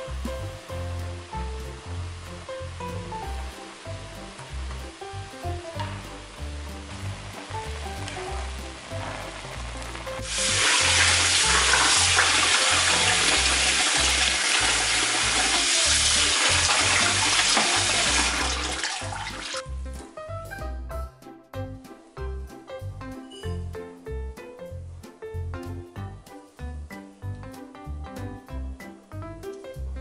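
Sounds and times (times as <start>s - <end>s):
background music: 0.0s - 30.0s
boiling pot bubbling: 6.7s - 19.6s
tap water running into sink: 10.2s - 19.6s.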